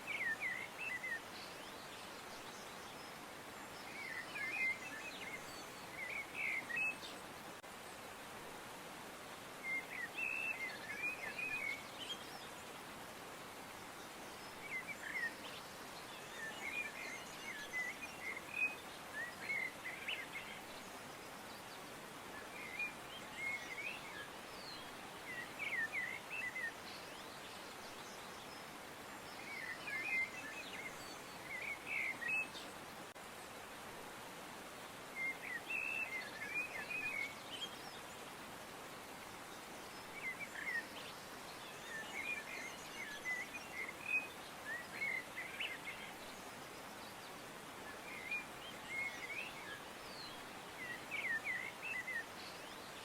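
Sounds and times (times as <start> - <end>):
steady background hiss: 0.0 - 53.0
small birds chirping: 39.3 - 53.0.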